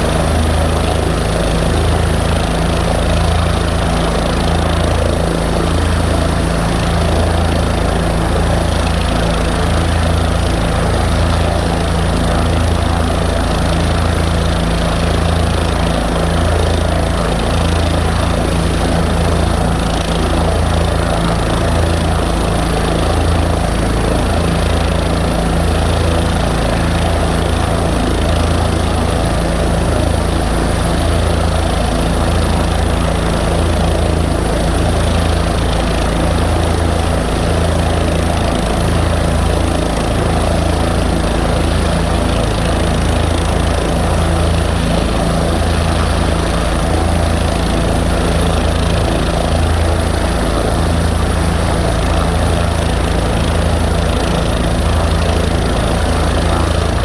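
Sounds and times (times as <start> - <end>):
aircraft engine idling: 0.0 - 57.0.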